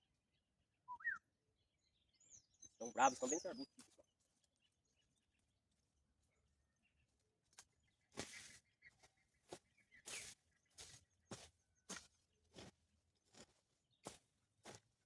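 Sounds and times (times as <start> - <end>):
footsteps of person walking: 7.5 - 15.0.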